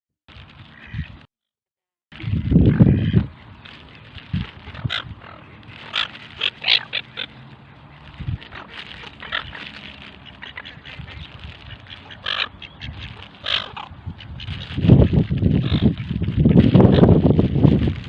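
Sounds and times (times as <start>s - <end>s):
ducks quacking: 0.7s - 1.2s, 2.5s - 16.2s.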